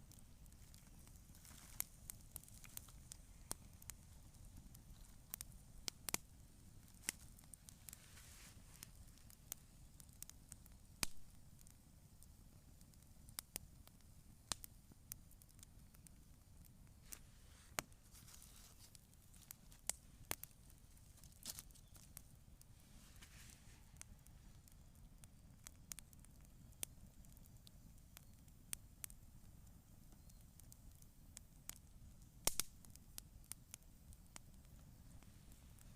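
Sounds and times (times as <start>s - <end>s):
sharp pops of fire: 0.0s - 22.4s, 23.0s - 35.9s
campfire crackling: 0.0s - 35.9s.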